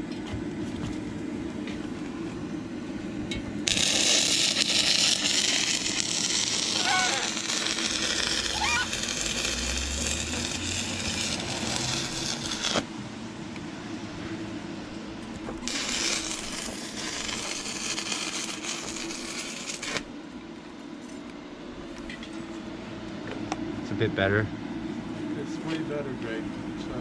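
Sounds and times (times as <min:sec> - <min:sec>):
welding arc crackling and sizzling: 0:03.6 - 0:13.1, 0:14.4 - 0:21.2.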